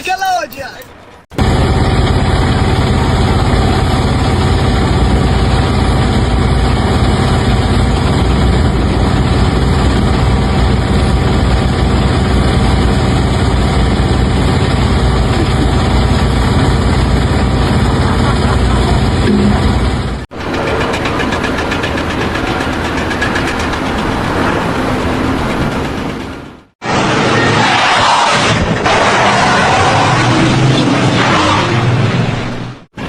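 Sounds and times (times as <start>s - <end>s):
large engine running: 1.3s - 27.7s.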